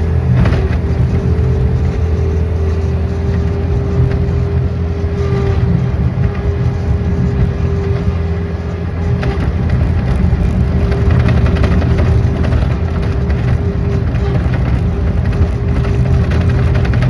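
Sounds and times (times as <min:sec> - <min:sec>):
motor engine running: 0:00.0 - 0:17.0
steady whine: 0:00.0 - 0:17.0.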